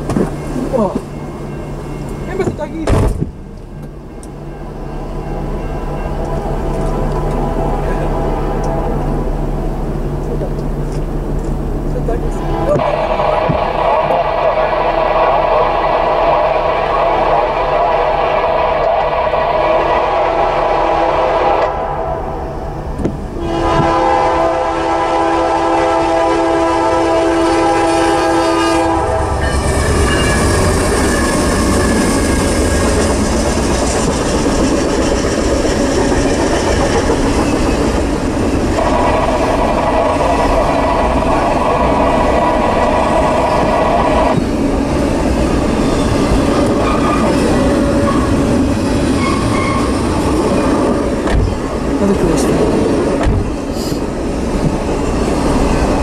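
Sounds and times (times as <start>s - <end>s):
freight train rumbling past: 0.0s - 56.0s
locomotive horn blowing: 15.6s - 22.4s, 23.4s - 32.2s, 49.2s - 50.0s.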